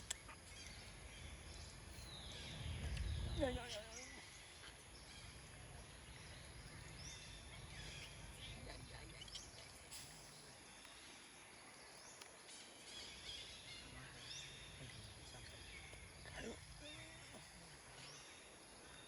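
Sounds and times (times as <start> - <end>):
low steady rumble: 0.0 - 10.5.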